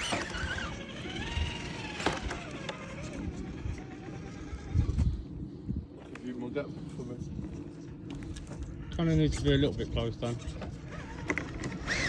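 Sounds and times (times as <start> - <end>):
electric motor and gear whine: 0.0 - 12.0.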